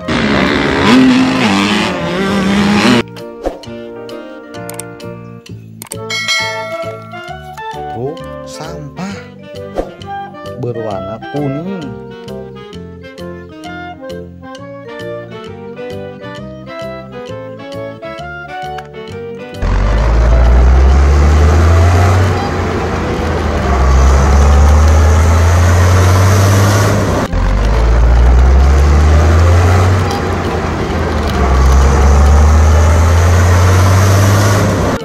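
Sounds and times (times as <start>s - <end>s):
vehicle engine rumbling: 0.0s - 3.0s, 19.6s - 35.0s.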